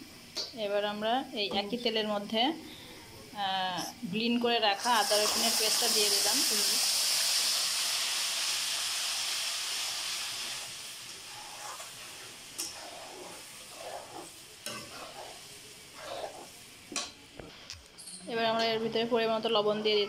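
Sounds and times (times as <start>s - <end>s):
paste sizzling in hot oil: 4.7s - 17.0s
spatula scraping a metal wok: 11.2s - 16.6s.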